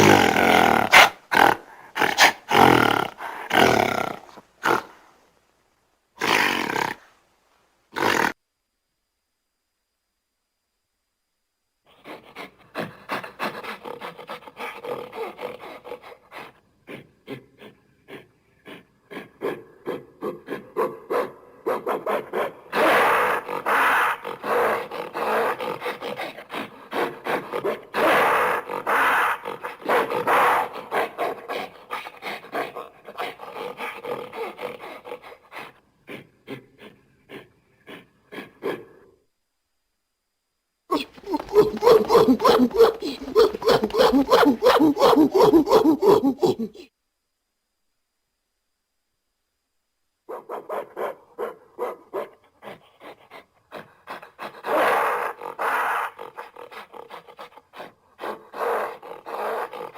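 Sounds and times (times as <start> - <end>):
gorilla grunting and growling: 0.0 - 5.0, 6.2 - 7.0, 8.0 - 8.4, 11.9 - 39.2, 40.9 - 46.9, 52.6 - 59.9.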